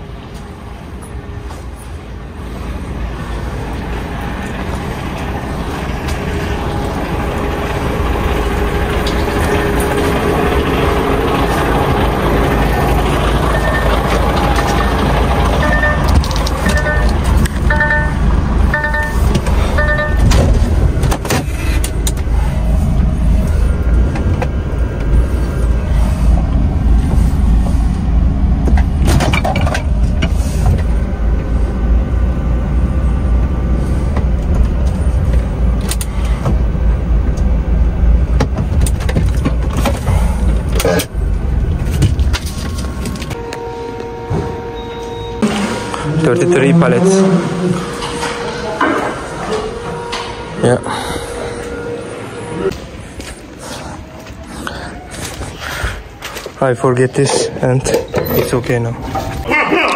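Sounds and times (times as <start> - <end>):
diesel truck engine rumbling: 0.0 - 59.9
reversing beeps: 13.5 - 14.0, 15.6 - 20.3, 43.4 - 46.4.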